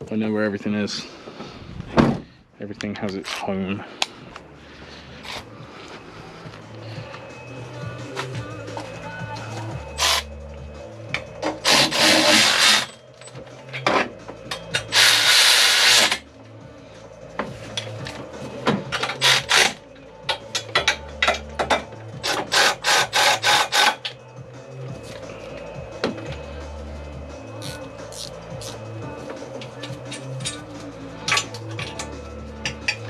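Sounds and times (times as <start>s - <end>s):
ratchet spanner ratcheting: 11.6s - 13.0s, 14.6s - 16.2s, 18.9s - 19.8s, 22.2s - 24.1s.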